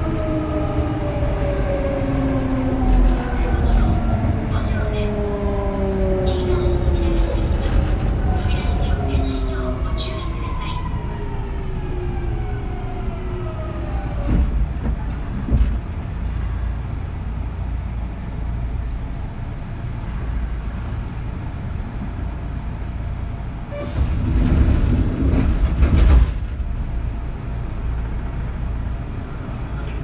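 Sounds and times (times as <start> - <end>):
electric train rumbling: 0.0 - 30.0
knocks inside train car: 24.1 - 26.7.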